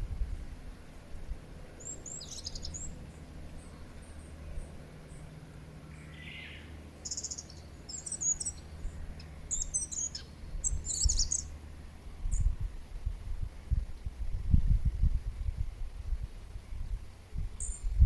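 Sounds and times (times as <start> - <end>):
birds chirping: 1.7 - 11.6.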